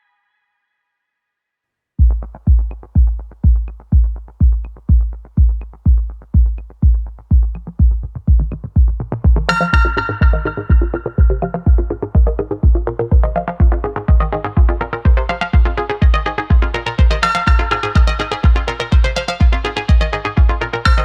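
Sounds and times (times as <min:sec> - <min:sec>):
drum machine kick beat: 0:02.0 - 0:21.0
synth chord: 0:09.5 - 0:21.0.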